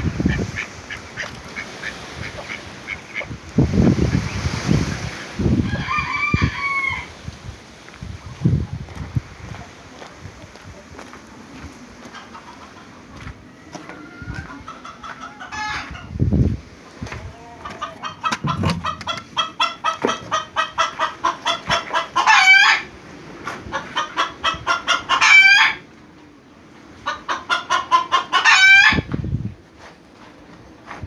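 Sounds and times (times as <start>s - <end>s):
chickens clucking and squawking: 0.0s - 7.2s, 10.8s - 29.2s
dull thumps: 18.2s - 20.4s.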